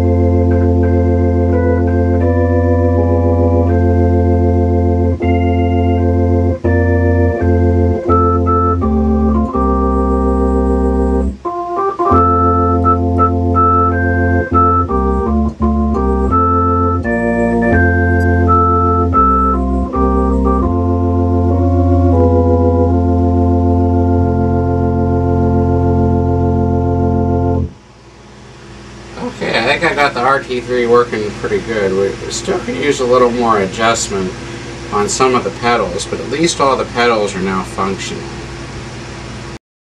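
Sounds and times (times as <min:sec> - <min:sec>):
low bass pedal notes: 0:00.0 - 0:27.9
organ playing chords: 0:00.0 - 0:39.6.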